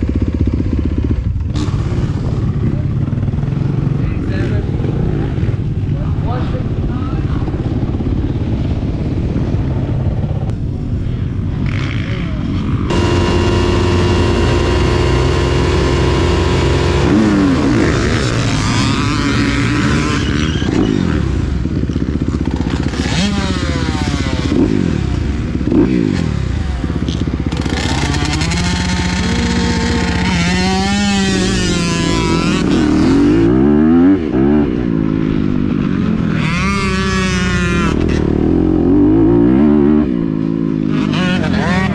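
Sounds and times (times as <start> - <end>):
motocross engine revving: 12.9 - 34.5.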